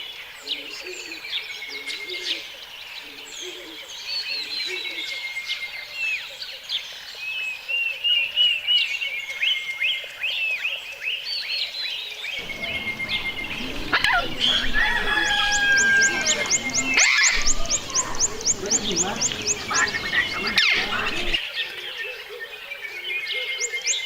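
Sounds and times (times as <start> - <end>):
birds chirping: 0.0 - 24.0
held whistled bird tones: 12.4 - 21.4.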